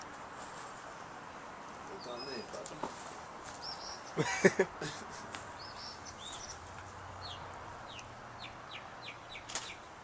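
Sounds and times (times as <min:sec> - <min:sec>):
bird chirping: 0:01.9 - 0:02.7, 0:03.5 - 0:10.0.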